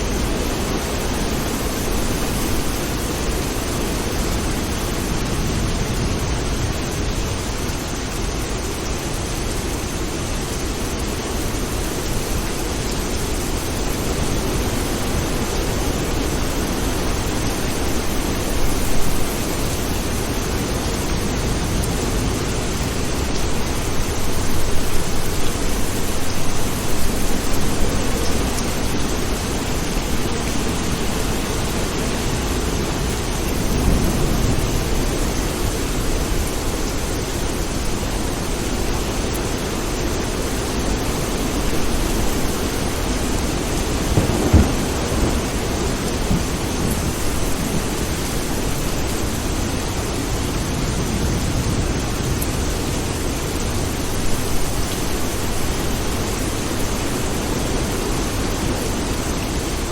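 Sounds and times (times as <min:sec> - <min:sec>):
heavy rain: 0:00.0 - 0:59.9
thunder rumbling: 0:13.4 - 0:36.6, 0:42.1 - 0:49.5.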